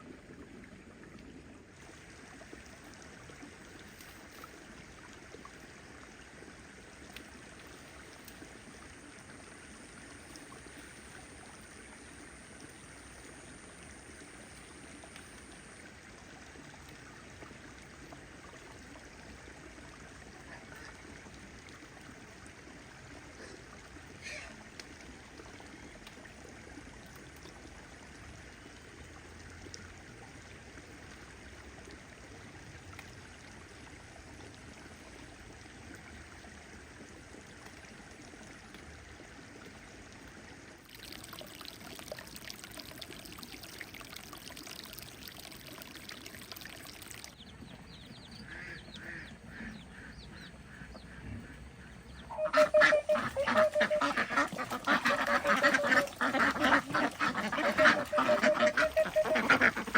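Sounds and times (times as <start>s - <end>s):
water trickling: 0.0s - 51.1s, 52.0s - 59.9s
ducks quacking: 48.4s - 59.9s.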